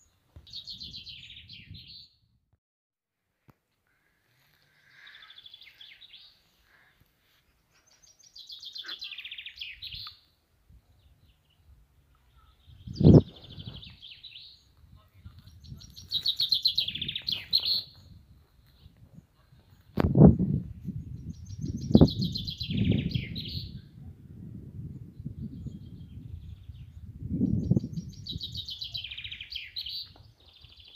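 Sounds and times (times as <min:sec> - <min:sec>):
songbird trilling: 0:15.5 - 0:18.1.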